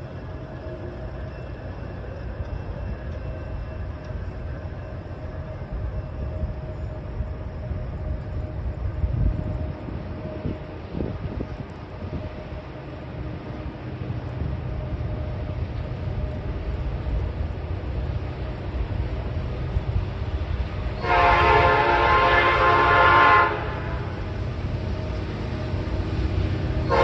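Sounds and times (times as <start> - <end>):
diesel locomotives rumbling: 0.0 - 27.0
train air horn blast: 21.0 - 24.2.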